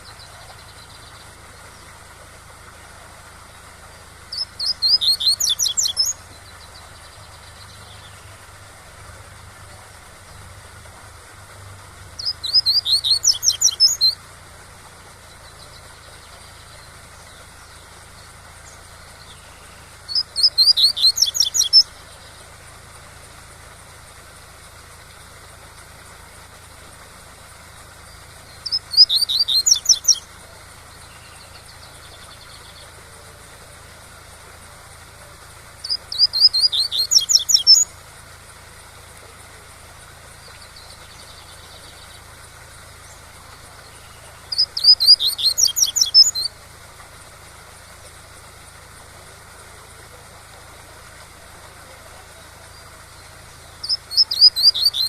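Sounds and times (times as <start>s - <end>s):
bird singing trilled phrases: 0.0s - 8.8s, 12.0s - 55.0s.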